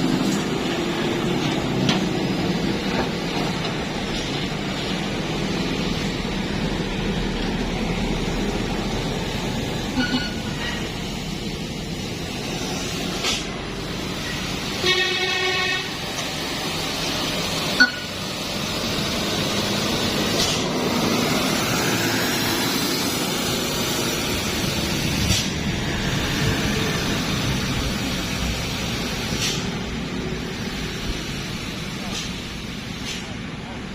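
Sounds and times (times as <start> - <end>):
truck engine and tyres passing: 0.0 - 33.9
vehicle horn toot: 14.8 - 16.0.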